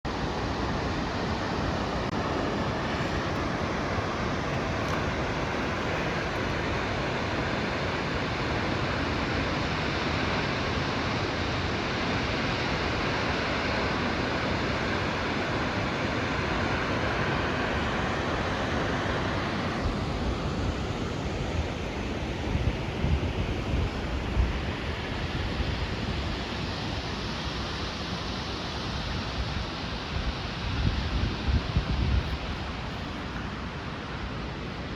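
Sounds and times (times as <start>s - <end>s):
wind buffeting microphone: 29.2s - 33.6s.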